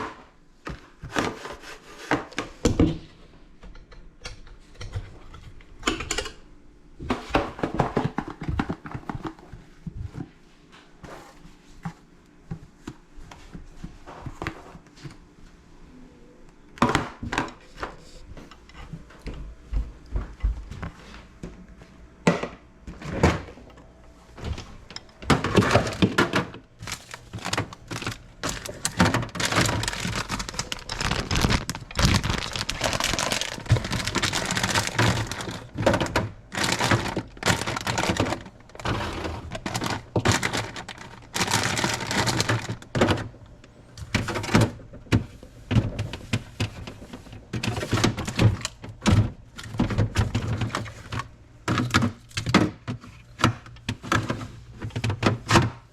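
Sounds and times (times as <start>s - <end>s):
hard objects knocking and clattering: 24.4s - 43.3s.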